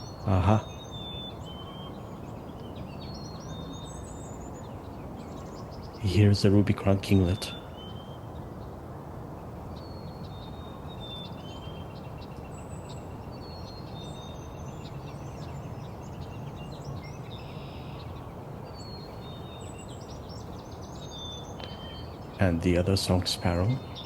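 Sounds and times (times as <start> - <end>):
other songbirds: 0.0 - 24.0
bird singing high whistled notes: 12.6 - 18.2, 18.8 - 22.4.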